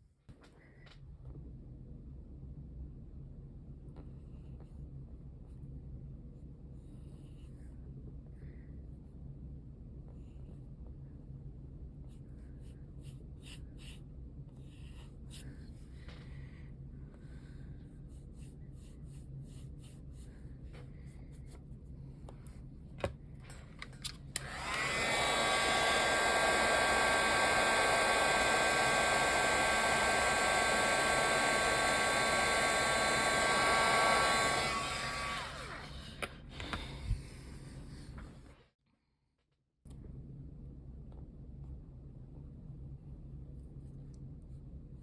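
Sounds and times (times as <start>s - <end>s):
hair dryer whining: 24.3s - 37.3s.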